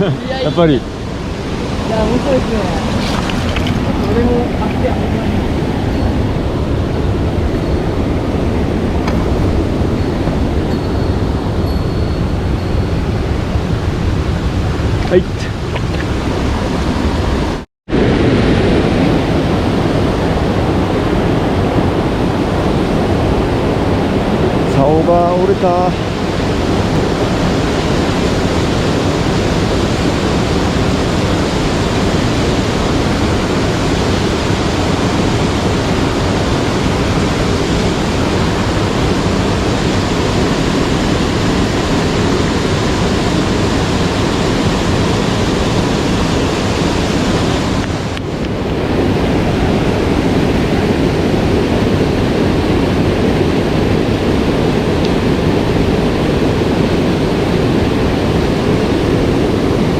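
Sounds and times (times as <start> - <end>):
stream rushing over rocks: 0.0 - 7.8, 23.8 - 50.8.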